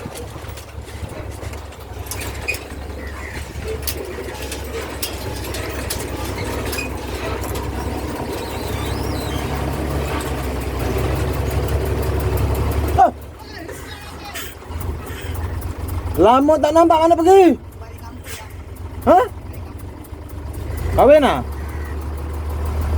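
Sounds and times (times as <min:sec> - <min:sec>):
low engine-like rumble: 0:00.0 - 0:22.9
faint bird chirps: 0:08.2 - 0:09.7.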